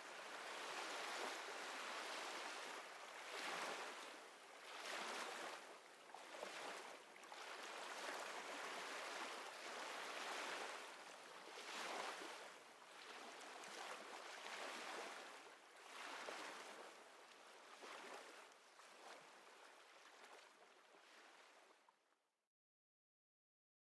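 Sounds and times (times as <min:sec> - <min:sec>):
gentle waves lapping: 0:00.1 - 0:21.8.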